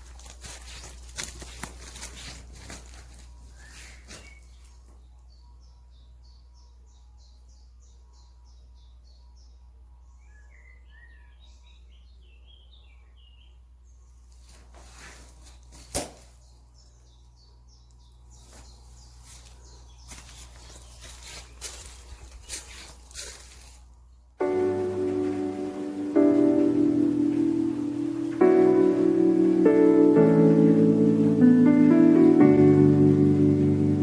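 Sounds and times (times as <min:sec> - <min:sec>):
rustling: 0:00.0 - 0:05.0, 0:14.2 - 0:16.6, 0:18.2 - 0:24.1
birds chirping and twittering: 0:00.0 - 0:31.4
steady low hum: 0:00.0 - 0:34.0.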